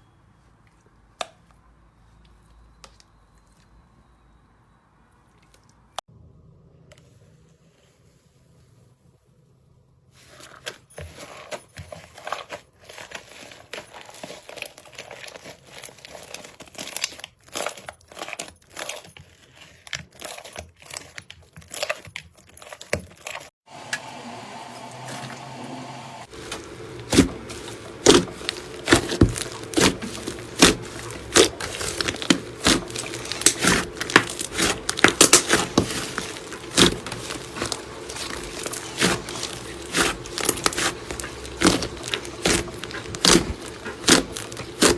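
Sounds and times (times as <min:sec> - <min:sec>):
slime crackling and squelching: 0:12.1 - 0:23.5, 0:26.3 - 0:44.9.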